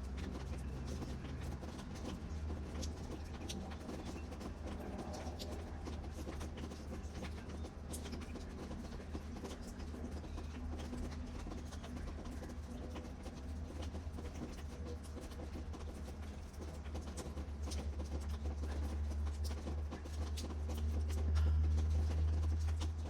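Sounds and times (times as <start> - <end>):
rain pattering and dripping: 0.0 - 23.0.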